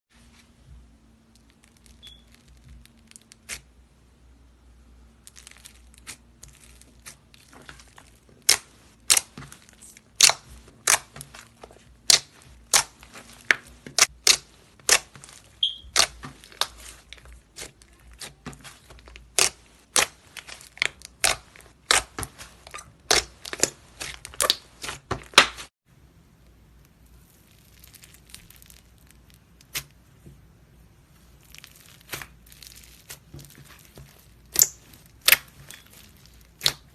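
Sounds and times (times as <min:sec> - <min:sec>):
sticky slime pops and crackles: 0:12.0 - 0:25.7, 0:27.5 - 0:30.0, 0:31.5 - 0:36.9
faint handling sounds: 0:26.4 - 0:36.9.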